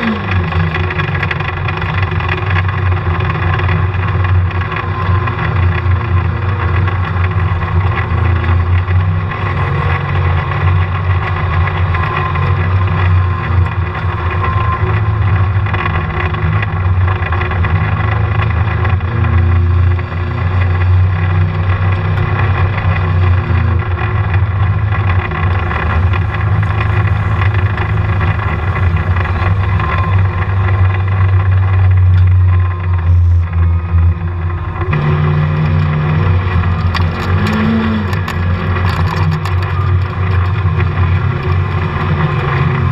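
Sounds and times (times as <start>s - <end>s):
vehicle engine drone: 0.0s - 42.9s
steady tone: 22.6s - 39.2s.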